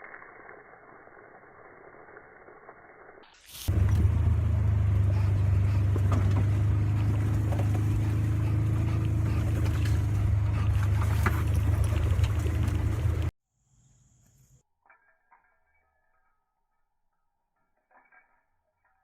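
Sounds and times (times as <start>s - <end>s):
loud low engine drone: 3.7s - 13.3s.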